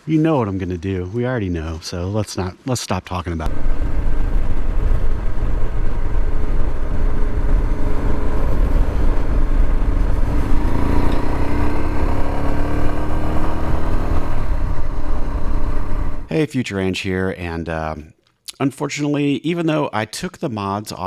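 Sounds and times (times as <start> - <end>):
motorcycle engine running: 3.5 - 16.3
wind rumbling on microphone: 3.5 - 16.3.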